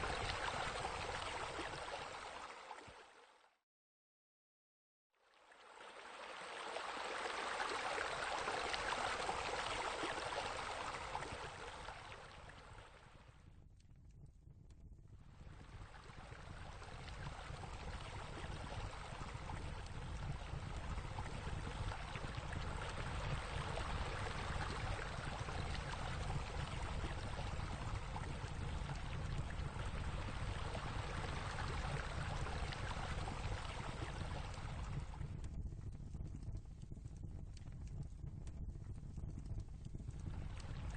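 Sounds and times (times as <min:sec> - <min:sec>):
rushing water: 0:00.0 - 0:03.2, 0:05.4 - 0:13.0, 0:20.1 - 0:34.8.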